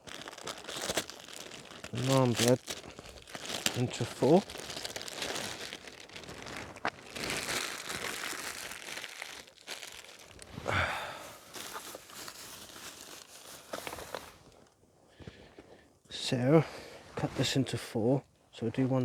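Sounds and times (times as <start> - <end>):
crinkling rustling handling noise: 0.0 - 15.9.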